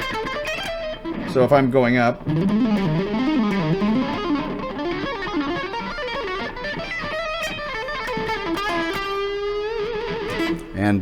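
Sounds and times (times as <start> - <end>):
electric guitar run: 2.2 - 10.6.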